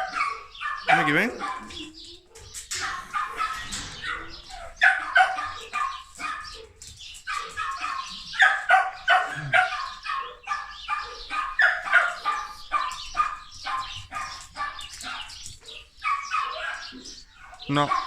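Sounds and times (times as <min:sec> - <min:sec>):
dog barking and yipping: 0:00.0 - 0:18.0.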